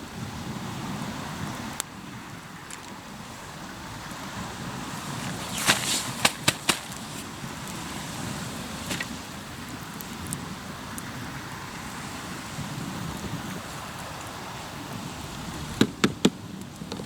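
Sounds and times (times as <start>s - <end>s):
waves washing: 0.0s - 16.8s
campfire crackling and popping: 4.4s - 14.2s.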